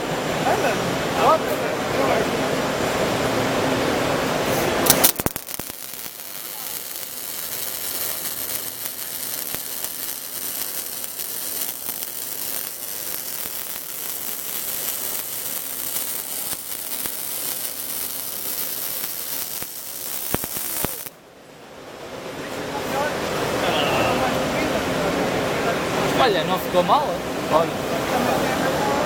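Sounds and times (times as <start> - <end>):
welding arc crackling: 4.6 - 21.2.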